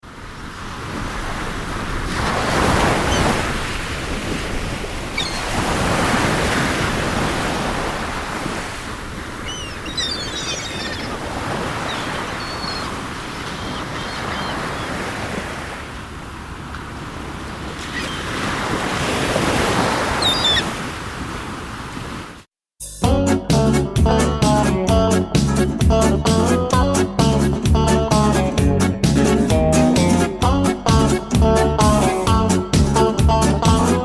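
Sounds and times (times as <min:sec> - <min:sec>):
sea waves splashing: 0:00.0 - 0:22.5.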